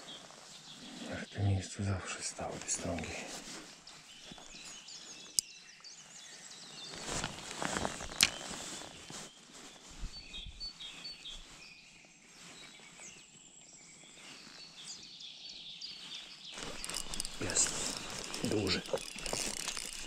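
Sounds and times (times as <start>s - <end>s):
small birds chirping: 0.0s - 20.0s
brief rustle: 2.6s - 5.5s, 6.4s - 11.7s, 16.0s - 20.0s.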